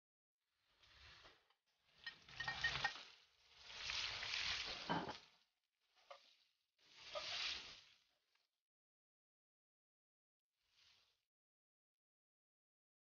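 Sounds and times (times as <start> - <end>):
vegetables sizzling in hot oil: 1.9 - 5.4, 6.8 - 8.0.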